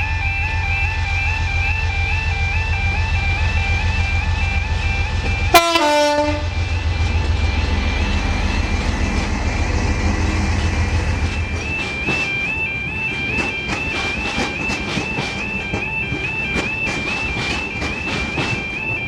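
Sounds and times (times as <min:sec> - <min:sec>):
train engine running: 0:00.0 - 0:19.0
two-tone warning alarm: 0:00.0 - 0:19.0
train horn blast: 0:05.5 - 0:06.6
wheels clicking over rail joints: 0:11.2 - 0:19.0.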